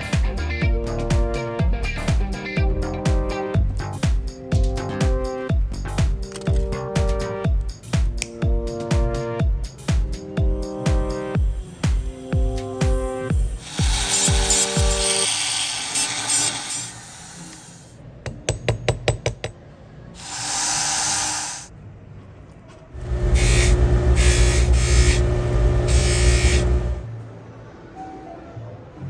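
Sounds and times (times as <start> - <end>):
rotary tool grinding metal: 13.6 - 17.8, 20.2 - 21.7, 23.0 - 27.0
short hiss: 20.2 - 21.7.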